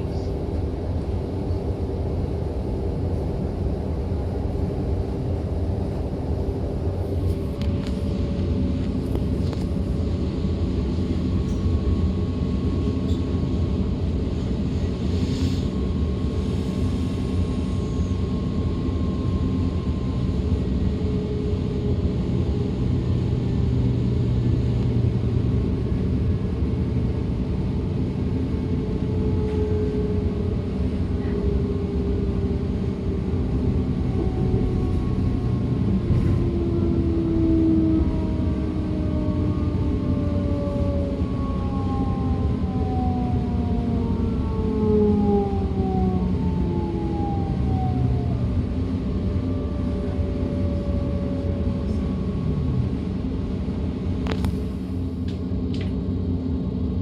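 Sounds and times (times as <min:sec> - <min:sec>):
train wheels rumbling on rail: 0:00.0 - 0:44.6
traction drive whine: 0:16.2 - 0:57.0.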